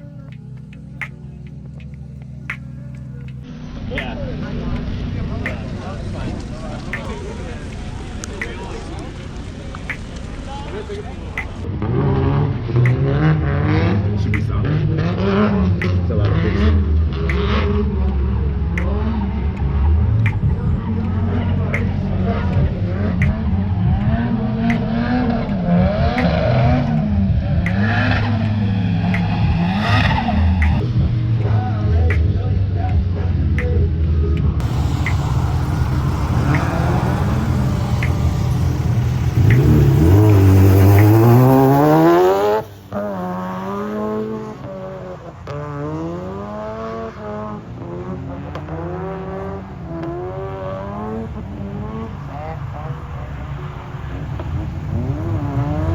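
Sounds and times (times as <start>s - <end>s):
car engine revving: 0.0s - 32.5s, 34.6s - 55.9s
sharp tick: 34.6s - 43.1s
tyre-like whine: 34.6s - 43.5s.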